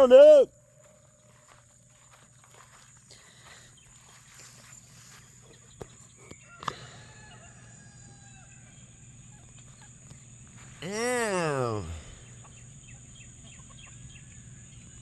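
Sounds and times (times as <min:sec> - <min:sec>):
footsteps outdoors: 0:00.0 - 0:06.8, 0:09.1 - 0:12.1
chickens and turkeys calling: 0:00.0 - 0:15.0.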